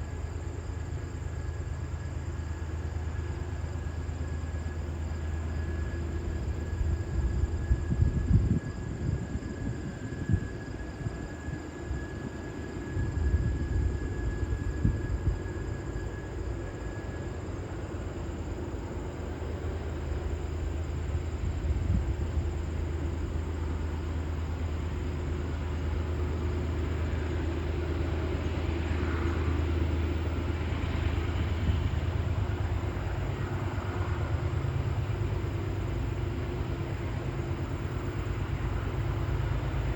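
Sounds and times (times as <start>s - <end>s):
freight train droning: 0.0s - 39.9s.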